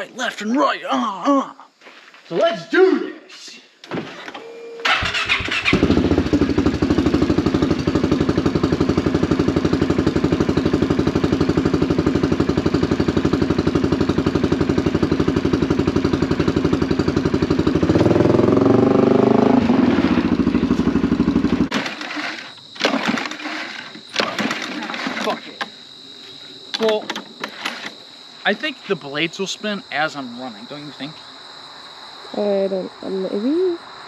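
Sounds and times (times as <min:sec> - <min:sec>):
small engine running: 0:04.8 - 0:25.4.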